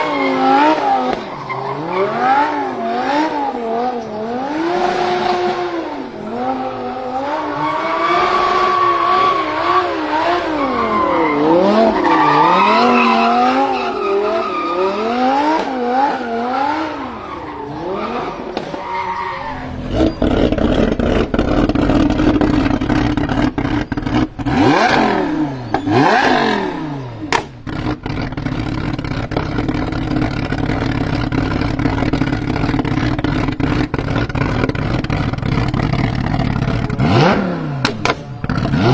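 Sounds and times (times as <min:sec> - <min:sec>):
tyre squeal: 0:00.0 - 0:02.6, 0:07.1 - 0:24.3, 0:24.9 - 0:27.1
car engine revving: 0:00.0 - 0:38.9.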